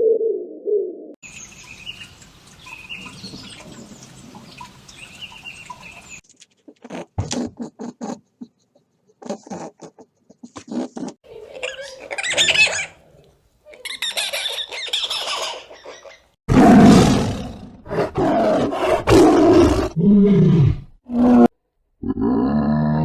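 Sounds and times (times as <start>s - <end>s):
long coarse roar: 16.5s - 23.0s.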